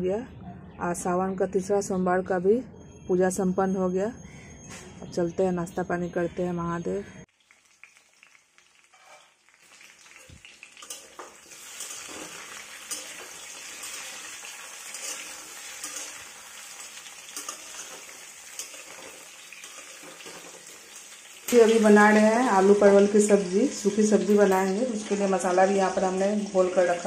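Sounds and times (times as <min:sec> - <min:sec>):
vegetables sizzling in a pan: 0:07.3 - 0:27.0
metal spatula scraping a pan: 0:08.8 - 0:09.4, 0:10.8 - 0:21.7.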